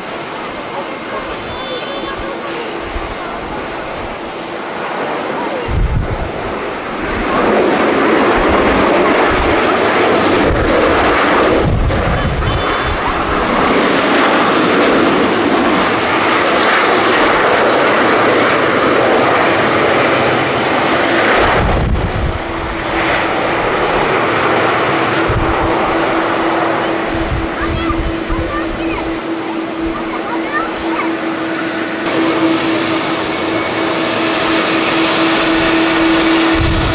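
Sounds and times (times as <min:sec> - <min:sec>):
jet engines roaring: 0:00.0 - 0:36.9
wind buffeting microphone: 0:00.0 - 0:36.9
low hum: 0:24.6 - 0:36.9.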